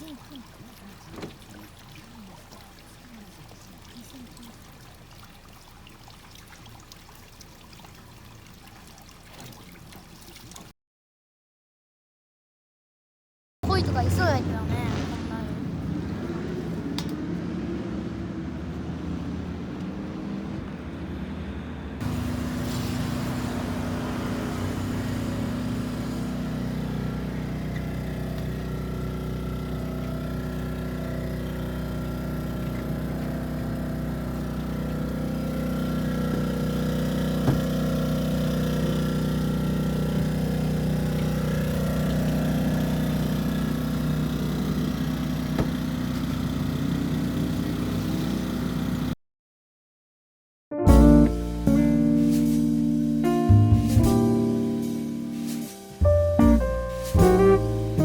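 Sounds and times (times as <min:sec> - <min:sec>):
engine humming: 0:00.0 - 0:10.7, 0:13.6 - 0:49.2, 0:50.9 - 0:58.0.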